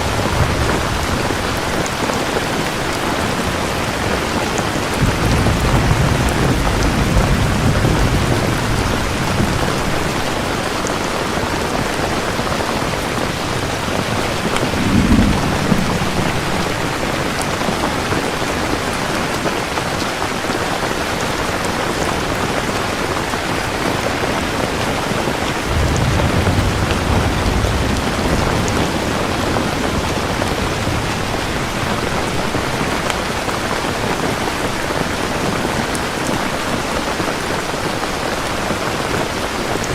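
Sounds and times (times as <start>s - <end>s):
thunder rumbling: 0.0s - 19.3s, 25.4s - 34.2s
heavy rain falling: 0.0s - 39.9s
sharp thunder crack: 13.9s - 18.3s, 25.7s - 31.3s.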